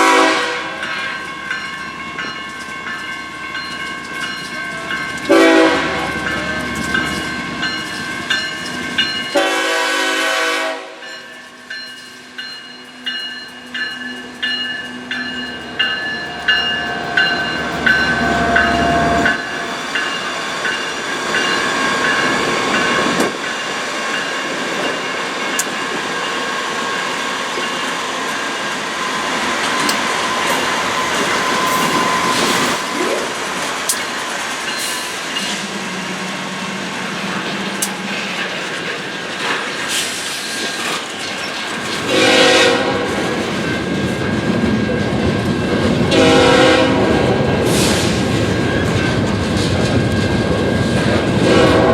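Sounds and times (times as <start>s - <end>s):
locomotive horn blast: 0.0s - 0.8s, 5.3s - 6.2s, 9.3s - 11.0s, 16.6s - 19.6s, 42.1s - 43.3s, 46.1s - 47.8s, 51.4s - 51.9s
rhythmic rail clicks: 0.0s - 51.9s
train wheels on rails: 0.0s - 51.9s.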